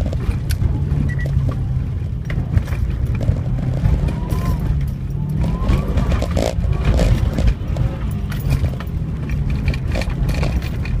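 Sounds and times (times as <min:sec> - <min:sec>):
car engine revving: 0:00.0 - 0:11.0
knocks and clicks: 0:00.0 - 0:11.0.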